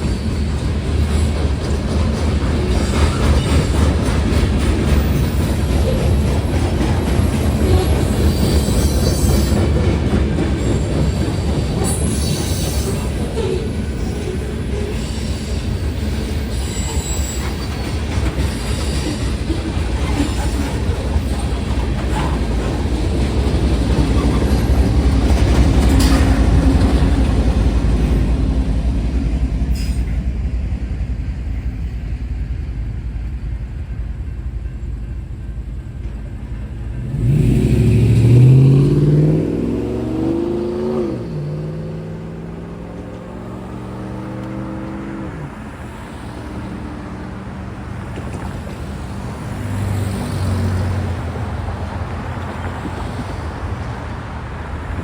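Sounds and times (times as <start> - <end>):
train wheels rumbling on rail: 0.0 - 55.0
wheel squeals: 4.8 - 22.9.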